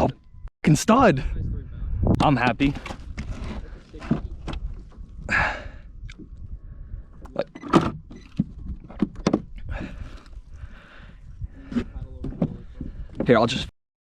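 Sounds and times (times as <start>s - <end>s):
knocks and thuds on plastic hull: 12.2s - 13.4s.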